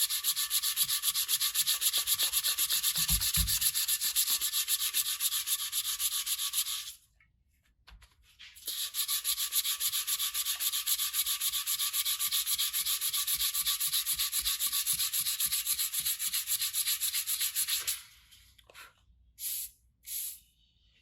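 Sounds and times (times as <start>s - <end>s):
sandpaper rubbing on metal: 0.0s - 7.0s, 8.6s - 18.1s.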